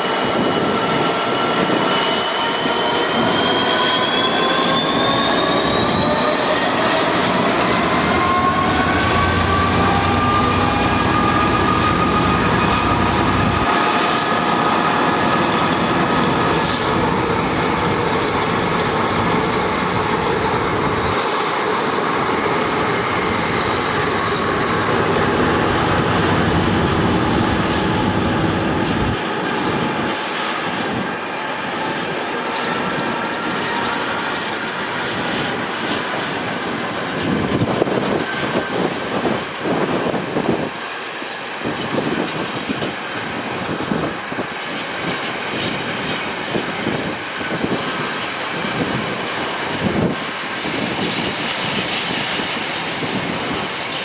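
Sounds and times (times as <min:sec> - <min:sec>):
train wheels rumbling: 0:00.0 - 0:54.0
high whining tones: 0:02.1 - 0:29.2.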